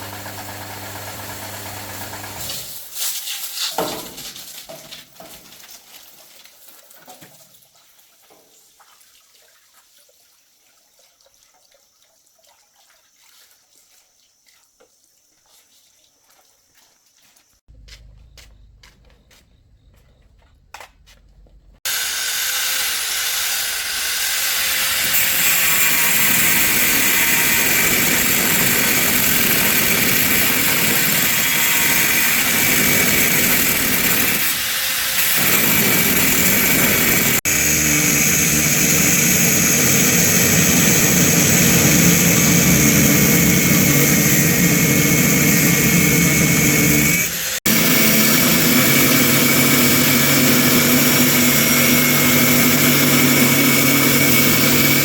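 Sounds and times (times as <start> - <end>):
machine running loud: 0.0 - 2.5, 21.9 - 55.0.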